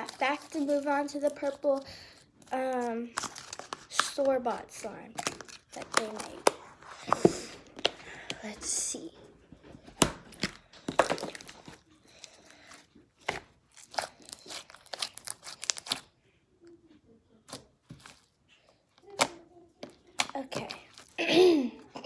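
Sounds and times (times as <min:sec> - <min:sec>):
slime sticky pops and crackles: 0:13.2 - 0:16.1.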